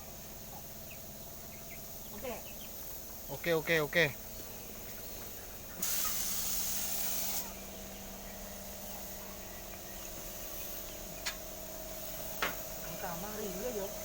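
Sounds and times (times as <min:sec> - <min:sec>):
aerosol spray paint hissing: 0:05.8 - 0:14.0.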